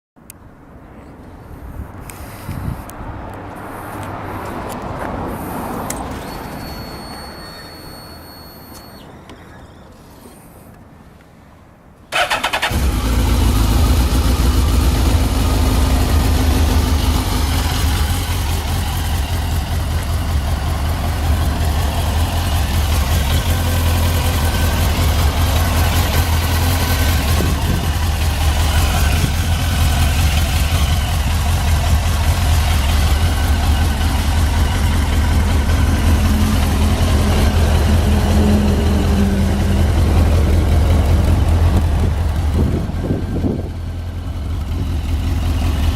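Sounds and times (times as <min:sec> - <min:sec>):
motorcycle engine starter cranking: 0:12.1 - 0:13.2
motorcycle engine idling: 0:12.2 - 0:45.9.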